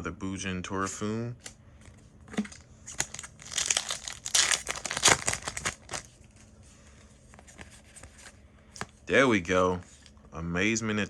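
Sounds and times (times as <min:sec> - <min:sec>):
foil wrapper crinkling and tearing: 0:02.9 - 0:06.3.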